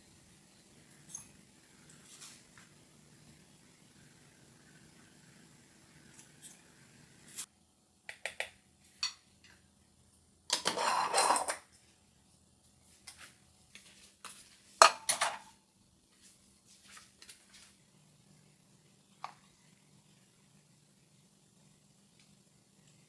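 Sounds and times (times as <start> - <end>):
dishes and utensils clinking: 10.5 - 11.7, 14.8 - 15.6.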